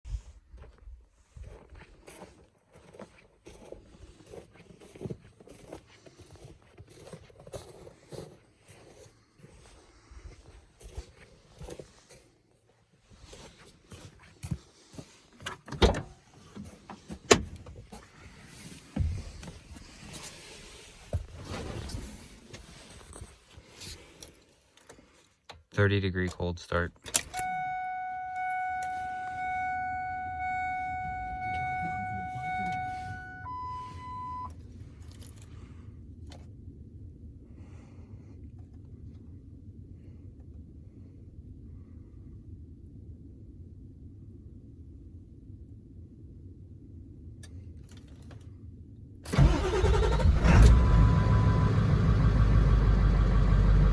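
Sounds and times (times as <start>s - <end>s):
constant low rumble: 0.1s - 49.3s, 50.4s - 53.9s
high electronic warning tone: 27.4s - 34.5s.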